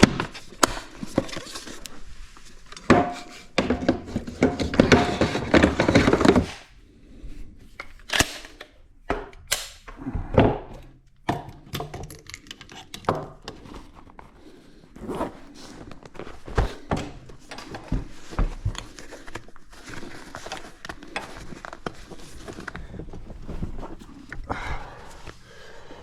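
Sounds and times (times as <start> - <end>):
rustling: 13.6 - 26.0.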